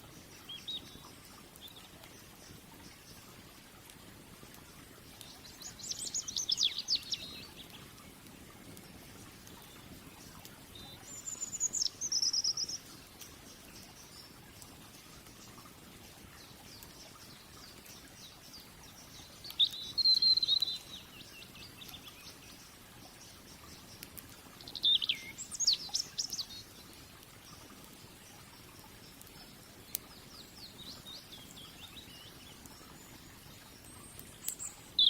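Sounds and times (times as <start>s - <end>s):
steady low hiss: 0.0s - 35.0s
wood fire crackles: 0.0s - 35.0s
songbird warbling: 5.4s - 7.7s, 18.9s - 22.5s, 24.6s - 26.7s.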